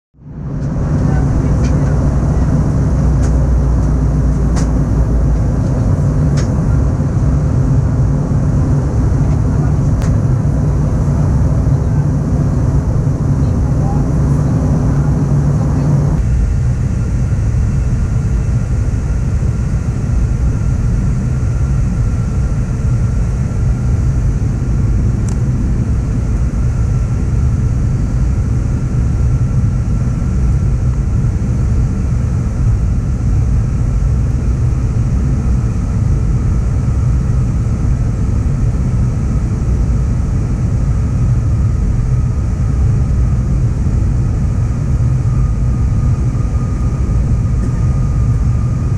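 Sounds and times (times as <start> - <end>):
aircraft cabin engine rumble: 0.2 - 48.9
faint steady whine: 0.2 - 48.9.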